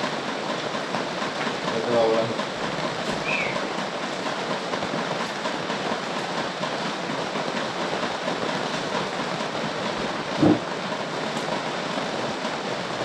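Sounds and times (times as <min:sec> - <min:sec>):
heavy rain falling: 0:00.0 - 0:13.0
loud thump: 0:10.4 - 0:10.6.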